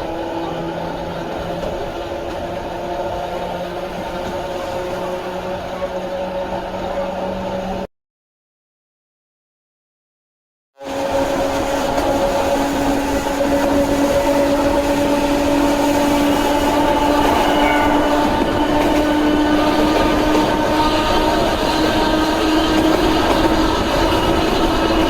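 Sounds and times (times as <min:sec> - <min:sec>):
train running gear rumble: 0:00.0 - 0:07.8, 0:10.9 - 0:25.0
electric train motor whine: 0:10.9 - 0:25.0.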